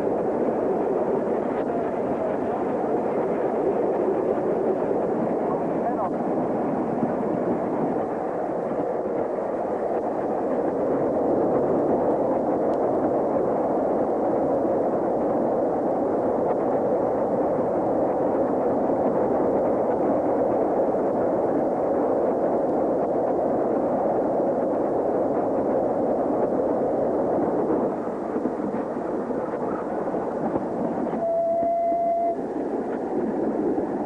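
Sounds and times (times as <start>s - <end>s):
train rushing rumble: 0.0s - 34.0s.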